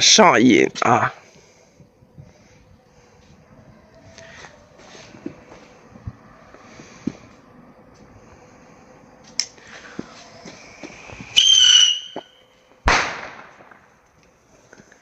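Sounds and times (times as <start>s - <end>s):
fuse hissing: 3.9s - 12.2s
firework shrill whistle: 9.7s - 13.5s
firework bang: 10.8s - 14.0s.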